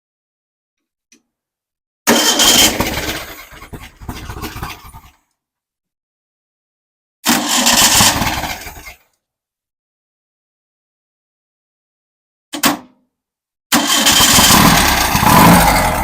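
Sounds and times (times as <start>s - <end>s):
engine starter cranking: 2.1s - 4.9s, 7.3s - 8.9s, 13.7s - 16.0s.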